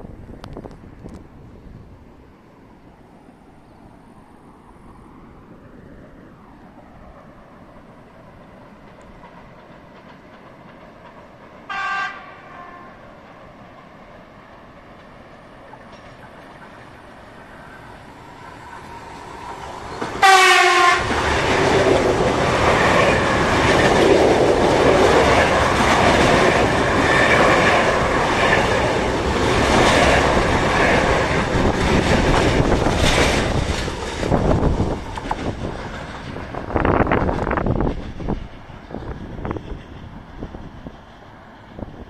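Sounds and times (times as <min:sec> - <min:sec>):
wind buffeting microphone: 0:00.0 - 0:02.3, 0:16.3 - 0:42.0
train wheels clattering on rails: 0:08.3 - 0:12.3, 0:13.0 - 0:17.8, 0:18.4 - 0:42.0
train horn blast: 0:11.7 - 0:13.0, 0:20.2 - 0:21.2.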